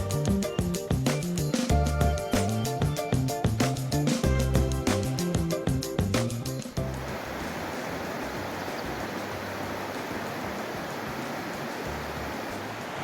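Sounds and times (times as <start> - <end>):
background music: 0.0 - 7.7
river rushing: 6.6 - 13.0.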